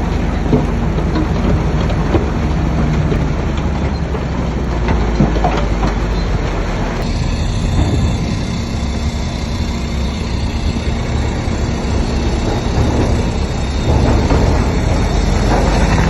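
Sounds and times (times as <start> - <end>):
bulldozer diesel engine: 0.0 - 16.0
steel tracks clanking: 0.0 - 16.0
hiss: 7.0 - 16.0.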